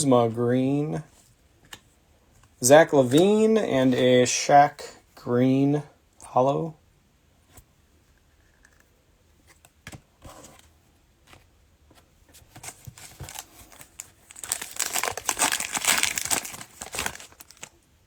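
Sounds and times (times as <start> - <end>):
cellophane wrapper tearing and crinkling: 12.8 - 17.8.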